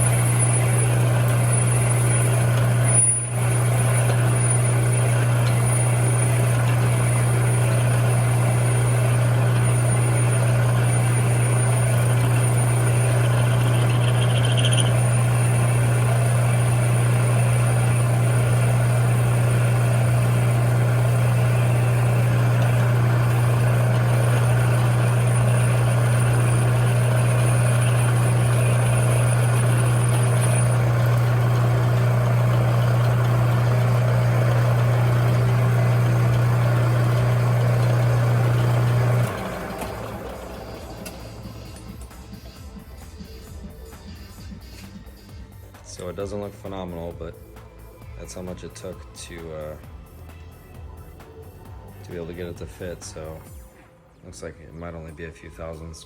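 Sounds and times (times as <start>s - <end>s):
faint high whine: 0.0s - 42.7s
metal lathe motor hum: 0.0s - 44.6s.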